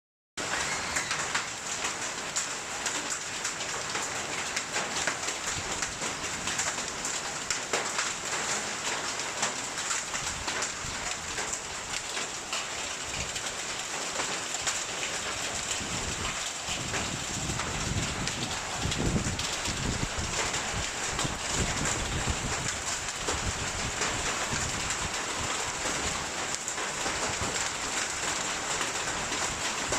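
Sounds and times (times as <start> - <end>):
heavy rain hiss: 8.2 - 29.9.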